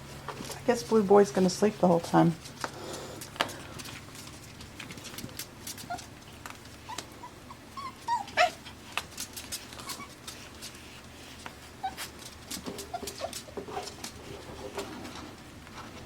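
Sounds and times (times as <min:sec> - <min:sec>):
puppies whimpering and yipping: 0:05.7 - 0:10.8, 0:11.6 - 0:13.6.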